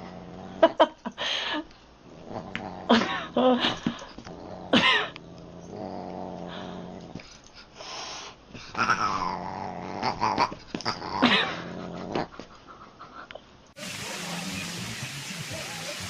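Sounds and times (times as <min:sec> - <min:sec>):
pet animal growling and crying: 0:08.7 - 0:12.4.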